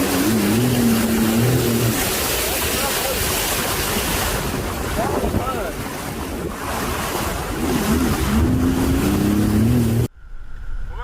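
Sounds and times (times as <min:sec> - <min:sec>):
rough surging sea: 0:00.0 - 0:10.1
wind buffeting microphone: 0:03.3 - 0:10.1.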